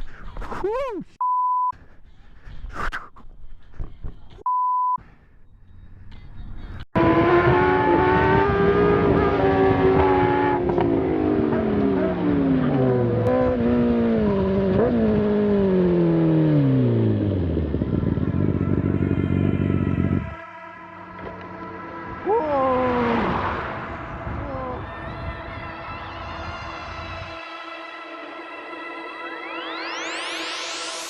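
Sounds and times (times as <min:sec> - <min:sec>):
motorcycle engine slowing: 0:07.0 - 0:20.4.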